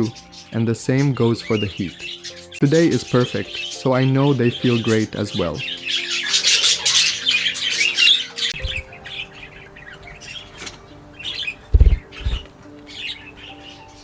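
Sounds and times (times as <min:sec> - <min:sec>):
birds chirping and chattering: 0:00.0 - 0:14.0
soft background music: 0:00.0 - 0:14.0
low thumps: 0:08.6 - 0:09.1.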